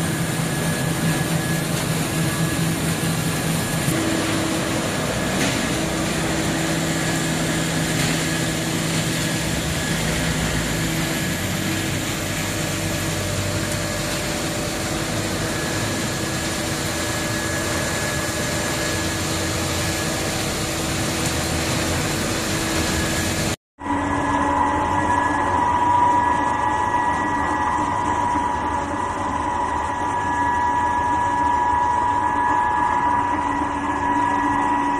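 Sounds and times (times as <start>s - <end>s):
engine hum and hiss: 0.0s - 23.6s.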